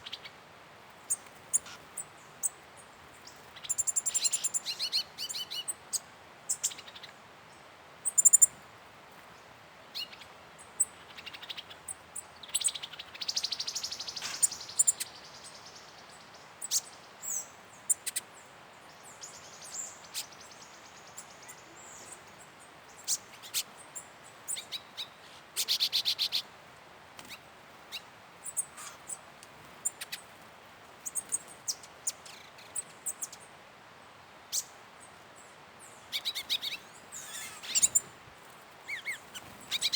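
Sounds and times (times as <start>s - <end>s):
forest birds chirping: 0.0s - 39.9s
buzzy bird call: 36.2s - 38.0s.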